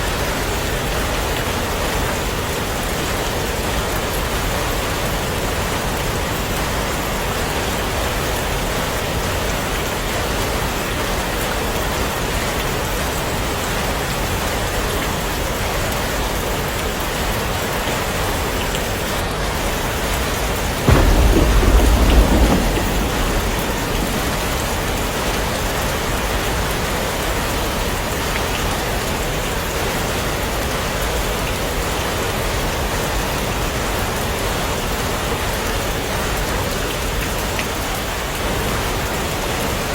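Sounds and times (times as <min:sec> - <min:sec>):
heavy rain falling: 0:00.0 - 0:39.9
deep thunder rumble: 0:18.9 - 0:28.2.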